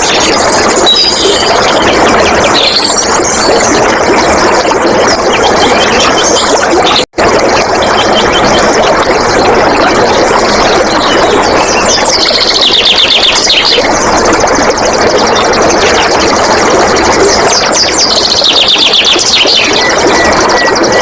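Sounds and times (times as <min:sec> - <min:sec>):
water flowing and splashing: 0:00.0 - 0:21.0.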